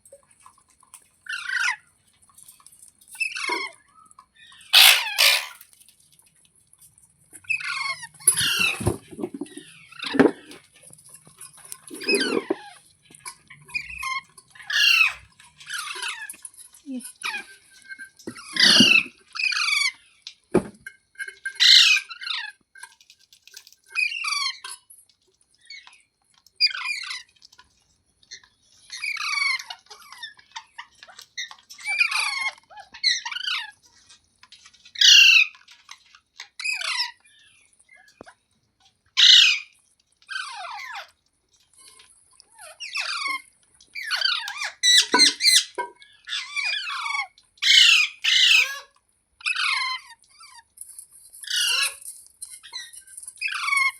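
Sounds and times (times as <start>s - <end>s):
parrot calling: 4.7s - 5.6s, 7.6s - 9.0s, 13.9s - 16.2s, 18.5s - 19.9s, 21.6s - 22.4s, 35.0s - 35.5s, 39.2s - 39.7s, 44.0s - 50.6s, 51.4s - 52.0s.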